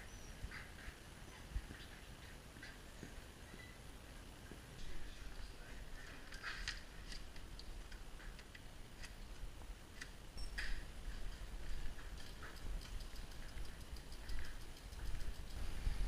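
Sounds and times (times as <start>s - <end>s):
light clicks and ticks: 6.0s - 16.0s.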